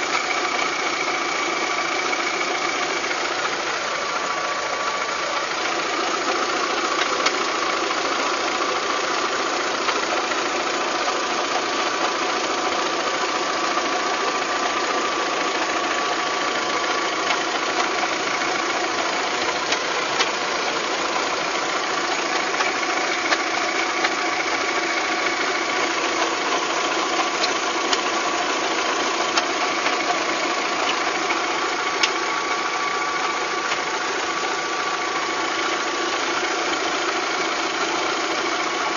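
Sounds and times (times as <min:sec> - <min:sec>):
car engine running: 0:00.0 - 0:38.9
steady engine whine: 0:16.5 - 0:38.9
sharp engine ticks: 0:19.4 - 0:20.4, 0:22.5 - 0:24.2, 0:29.2 - 0:32.3.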